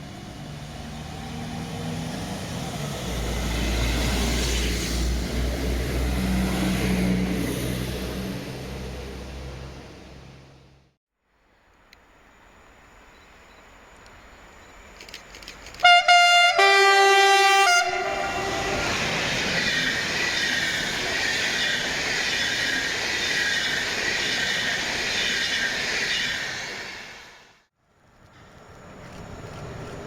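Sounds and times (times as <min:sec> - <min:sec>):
train wheel and rail noise: 0:00.0 - 0:10.7, 0:11.9 - 0:30.0
train horn blasts: 0:15.8 - 0:19.3.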